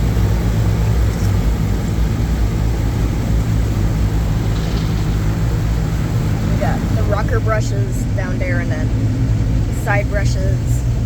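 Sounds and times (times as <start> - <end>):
car wash machinery and spray: 0.0 - 11.0.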